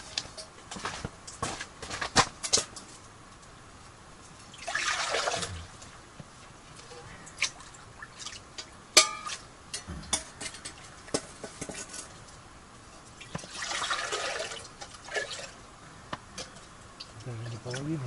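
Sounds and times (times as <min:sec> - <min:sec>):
water pouring into metal pot: 0:04.6 - 0:05.6, 0:13.2 - 0:15.6
sharp ringing metal clank: 0:09.0 - 0:10.4.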